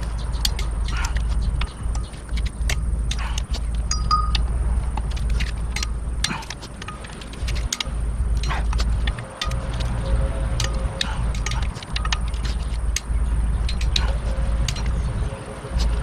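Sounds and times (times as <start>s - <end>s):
low steady rumble: 0.0s - 16.0s
metal tools clinking: 0.4s - 4.5s, 5.1s - 15.1s
short metallic pings: 3.9s - 4.5s.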